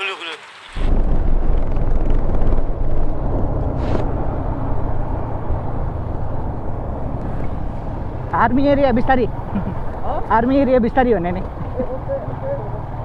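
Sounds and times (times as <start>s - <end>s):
wind rushing over microphone: 0.8s - 10.7s
motorcycle engine running: 0.9s - 13.0s.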